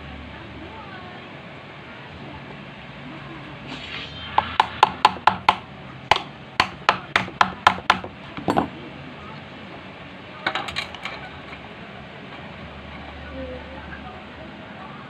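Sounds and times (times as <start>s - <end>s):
sharp knocks on washing machine: 4.6s - 8.1s.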